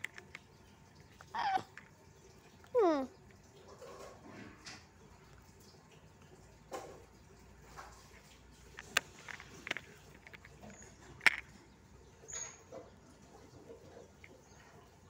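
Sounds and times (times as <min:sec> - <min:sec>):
toy cars clicking and knocking: 0:00.0 - 0:02.0, 0:06.7 - 0:13.0.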